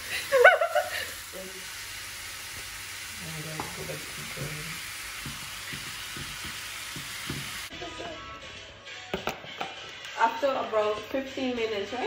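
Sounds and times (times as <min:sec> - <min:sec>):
chicken sizzling in oil: 0:00.0 - 0:07.7.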